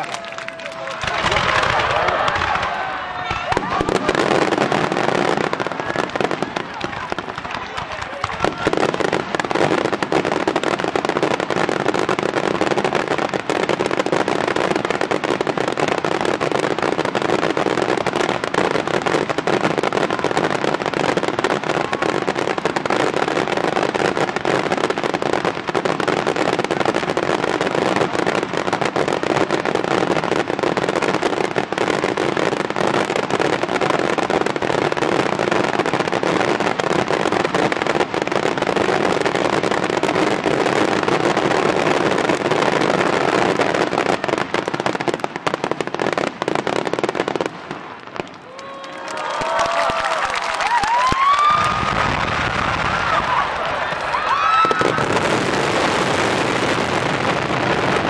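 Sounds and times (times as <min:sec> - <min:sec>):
fireworks bursts and crackling: 0:00.0 - 0:58.0.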